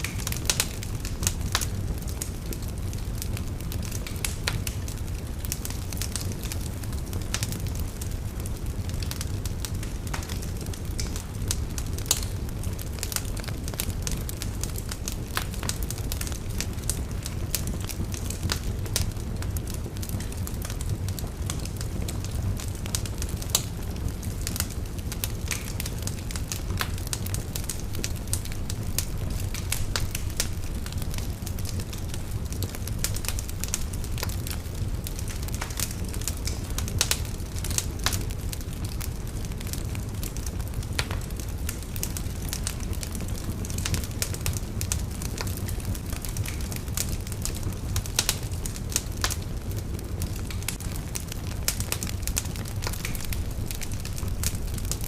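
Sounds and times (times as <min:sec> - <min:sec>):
fire crackling in fireplace: 0:00.0 - 0:55.0.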